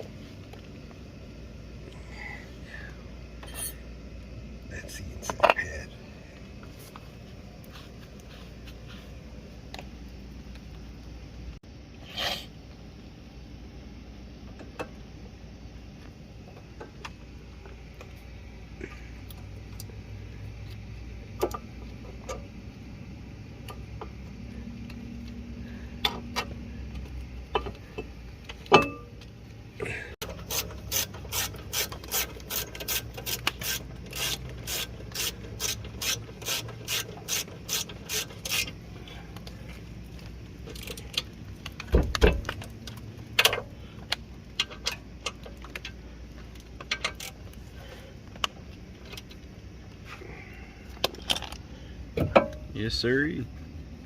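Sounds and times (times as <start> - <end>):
metal tool knocks and clanks: 28.7 - 29.1, 52.2 - 52.6
ratchet wrench clicking: 30.4 - 38.8.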